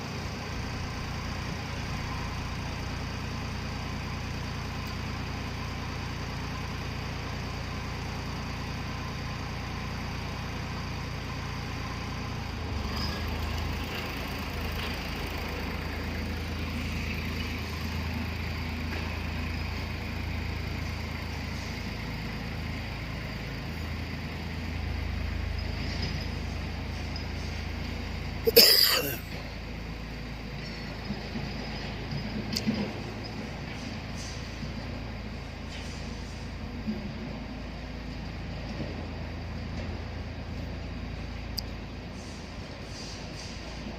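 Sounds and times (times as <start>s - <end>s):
tractor engine running: 0.0s - 28.4s.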